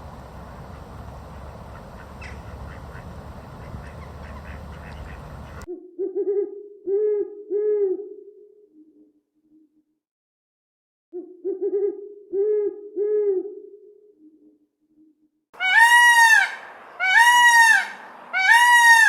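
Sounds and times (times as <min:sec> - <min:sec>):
steady rushing noise: 0:00.0 - 0:05.7
owl hooting: 0:00.7 - 0:08.0, 0:15.6 - 0:19.0.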